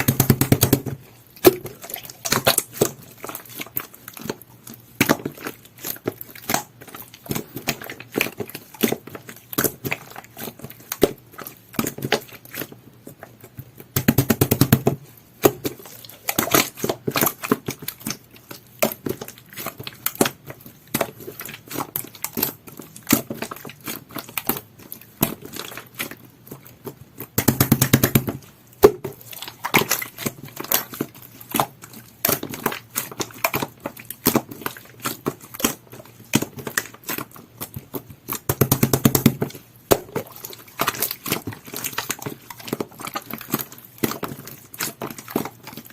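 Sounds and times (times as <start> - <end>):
slime squishing with sticky clicks: 0.0 - 45.9.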